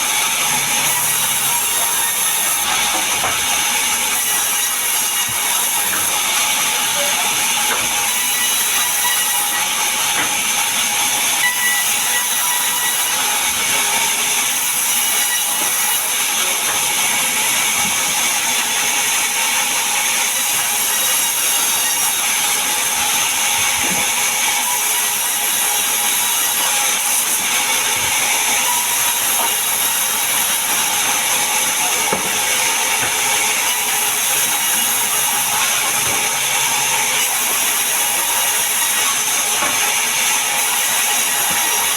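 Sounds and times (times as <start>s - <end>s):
power saw cutting wood: 0.0s - 41.9s.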